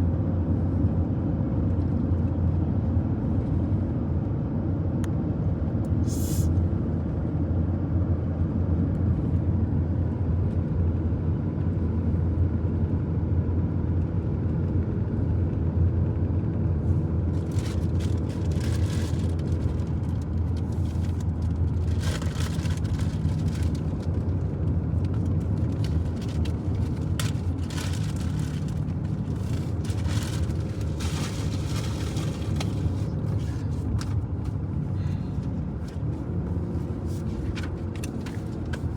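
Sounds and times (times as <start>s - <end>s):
truck driving on highway: 0.0s - 38.9s
short bursts of hiss: 6.0s - 6.5s.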